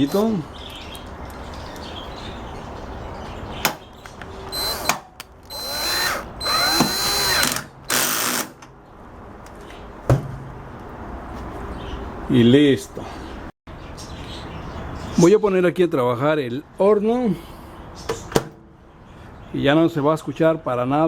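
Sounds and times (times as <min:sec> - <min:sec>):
drill click: 0:04.5 - 0:08.6
drill driving screw into metal: 0:04.5 - 0:08.6.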